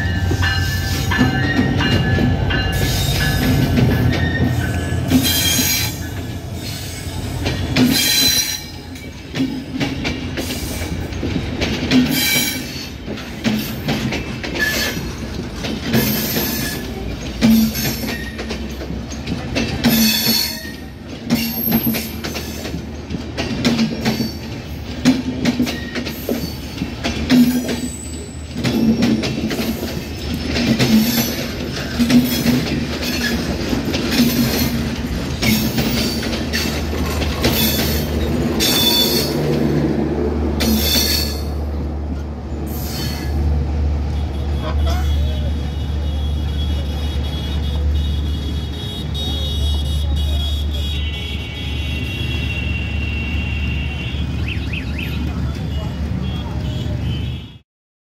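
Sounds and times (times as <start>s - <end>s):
wheels screeching: 0.0s - 9.3s, 10.4s - 23.1s, 25.6s - 44.0s
wheels clacking over rail joints: 0.0s - 50.8s
train rumble: 0.0s - 57.4s.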